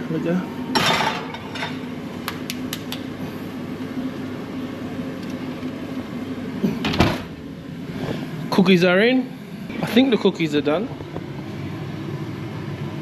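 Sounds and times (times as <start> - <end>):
oven fan humming: 0.0 - 13.0.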